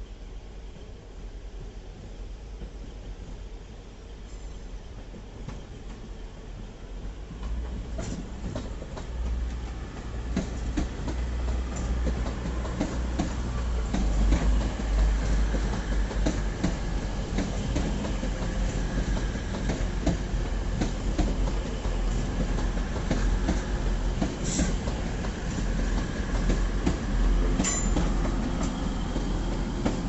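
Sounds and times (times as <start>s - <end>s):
train low rumble: 0.0s - 30.0s
train wheels clicking over rail joints: 7.1s - 30.0s.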